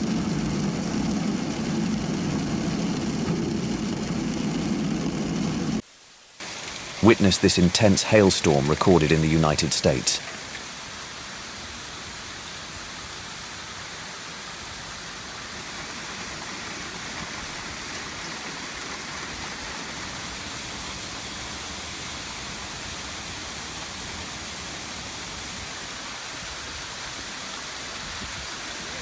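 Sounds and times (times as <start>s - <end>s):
hail and rain pelting down: 6.3s - 29.0s.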